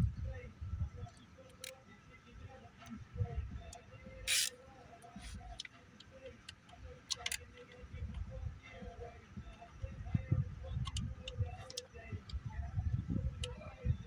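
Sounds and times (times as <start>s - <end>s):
tools clicking: 4.3s - 4.5s, 6.5s - 7.7s
low uneven rumble: 7.7s - 14.0s.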